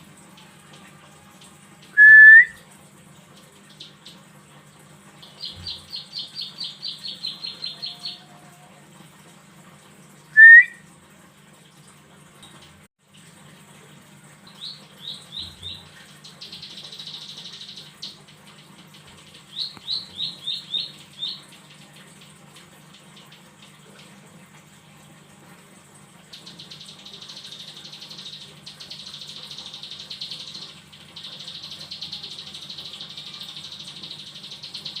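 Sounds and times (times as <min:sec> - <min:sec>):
bird chirping and trilling: 0:02.0 - 0:02.6, 0:05.2 - 0:08.3, 0:10.4 - 0:10.8, 0:19.5 - 0:21.8.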